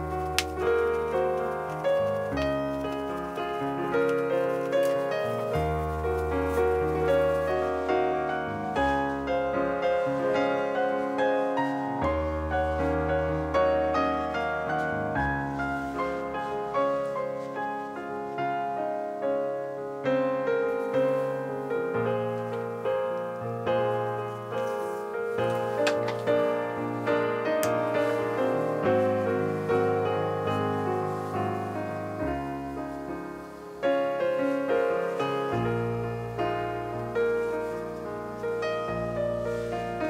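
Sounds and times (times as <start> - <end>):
calm solo piano music: 0.0 - 40.0.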